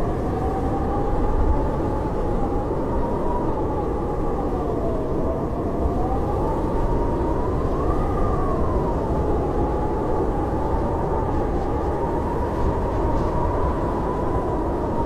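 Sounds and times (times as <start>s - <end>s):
howling blizzard wind: 0.0s - 15.0s.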